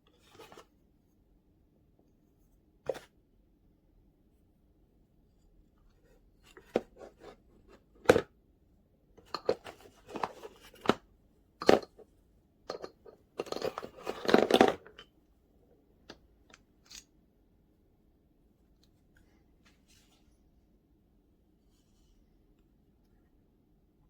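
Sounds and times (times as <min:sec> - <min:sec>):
handling clicks rustles and scrapes: 0:00.0 - 0:00.7, 0:05.9 - 0:08.2, 0:09.2 - 0:12.1, 0:12.7 - 0:15.1, 0:16.1 - 0:17.1.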